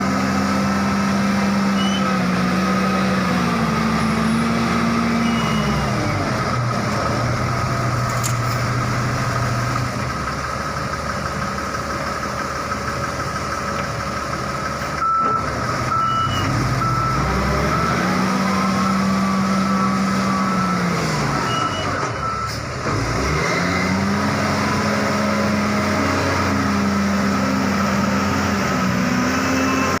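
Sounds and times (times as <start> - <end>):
diesel engine revving under load: 0.0 - 30.0
reversing alarm beeping: 5.2 - 6.2, 15.0 - 22.6.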